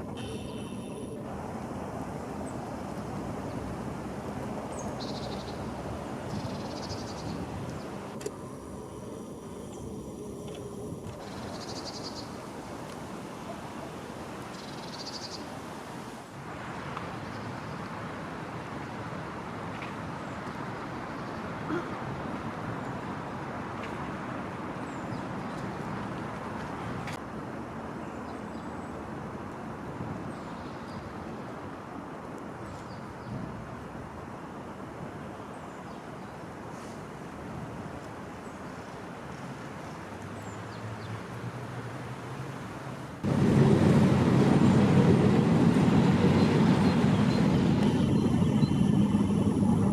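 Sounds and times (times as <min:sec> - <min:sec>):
background hiss and rumble: 0:00.0 - 0:49.9
faint bird chirps: 0:00.2 - 0:01.2.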